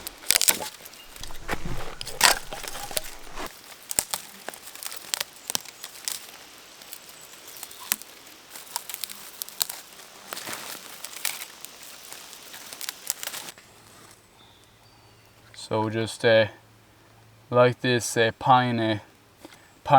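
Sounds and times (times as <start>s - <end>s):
twigs snapping: 0.0s - 6.3s, 7.9s - 13.4s
pine needles and twigs rustling: 0.0s - 14.2s.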